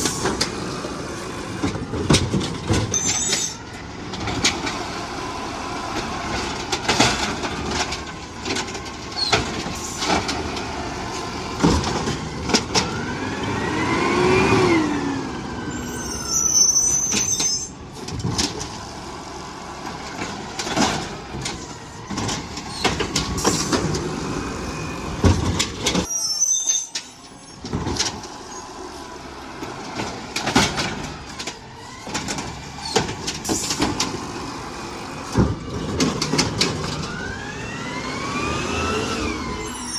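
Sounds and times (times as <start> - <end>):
garbage truck engine: 0.0 - 39.9
sharp clanks and knocks: 6.0 - 13.0, 19.9 - 24.2, 29.7 - 34.4.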